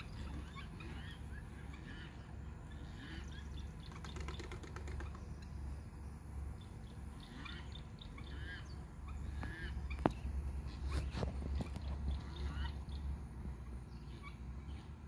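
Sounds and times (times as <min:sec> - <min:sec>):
birds calling: 0:00.0 - 0:15.0
steady low rumble: 0:05.1 - 0:15.0.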